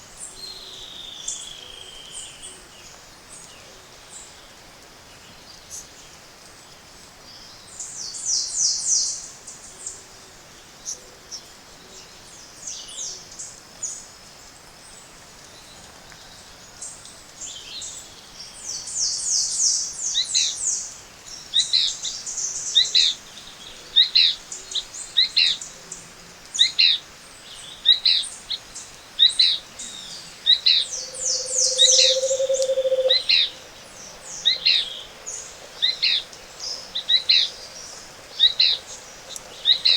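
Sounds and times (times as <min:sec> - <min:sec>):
birds singing in chorus: 0:26.5 - 0:39.9
rapid high bird trills: 0:30.7 - 0:33.7
downward sliding whistled notes: 0:30.9 - 0:33.6
low hoot-like note: 0:30.9 - 0:33.8.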